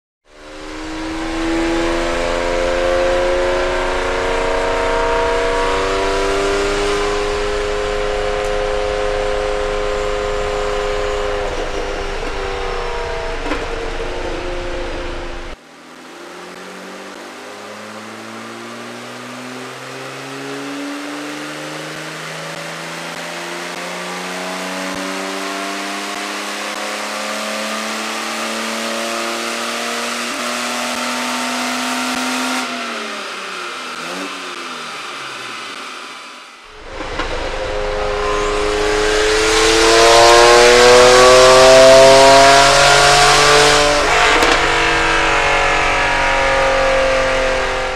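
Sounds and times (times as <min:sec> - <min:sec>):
car engine revving on dyno: 0:00.3 - 0:47.9.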